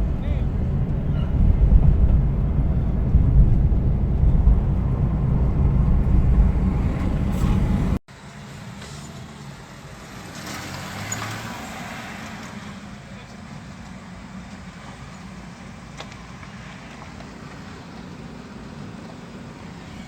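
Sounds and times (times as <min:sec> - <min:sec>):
wind buffeting microphone: 0:00.0 - 0:08.0
road vehicle rumble: 0:00.0 - 0:20.0
street traffic noise: 0:00.0 - 0:20.0.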